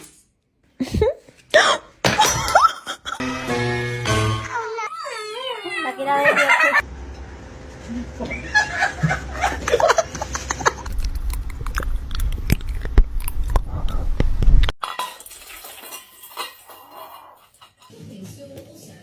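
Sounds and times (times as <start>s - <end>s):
low rumble: 10.8s - 14.7s.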